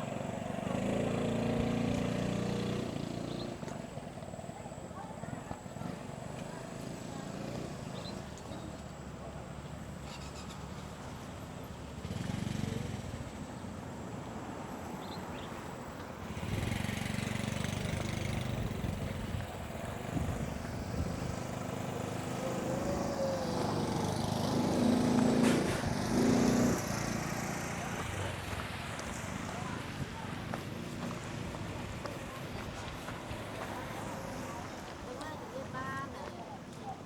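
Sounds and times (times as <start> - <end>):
vehicle engine rumbling: 9.6 - 35.1.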